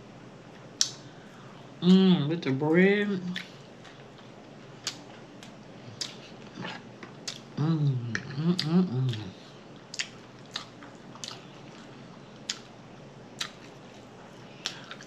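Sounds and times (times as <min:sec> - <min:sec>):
person's voice: 0:01.8 - 0:03.4
food being chewed: 0:03.3 - 0:15.0
wet lip smacks: 0:09.9 - 0:11.4, 0:13.4 - 0:13.7.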